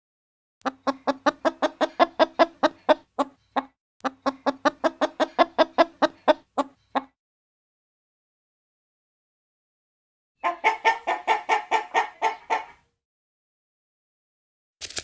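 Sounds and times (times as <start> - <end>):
chicken clucking: 0.6 - 7.2, 10.4 - 12.9.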